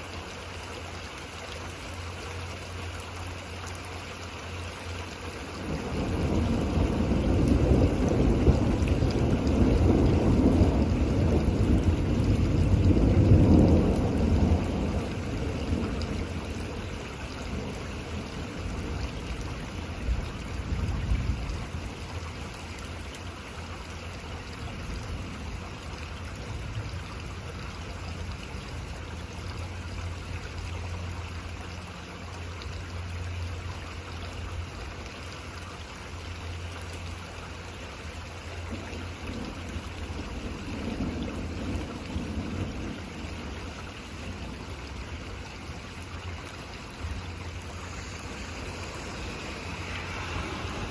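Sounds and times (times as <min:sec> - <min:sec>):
steady rain: 0:00.0 - 0:50.9
distant thunder rumbles: 0:05.6 - 0:22.2, 0:38.6 - 0:50.9.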